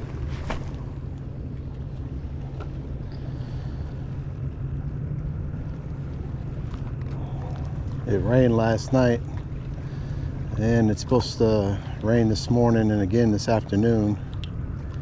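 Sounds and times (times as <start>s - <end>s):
steady low hum: 0.0s - 15.0s
faint clicks: 14.2s - 15.0s.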